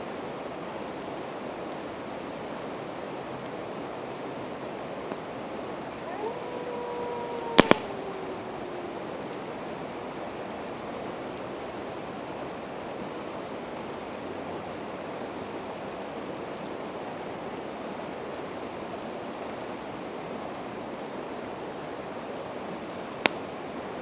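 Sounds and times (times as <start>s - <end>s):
campfire crackling: 5.2s - 9.6s.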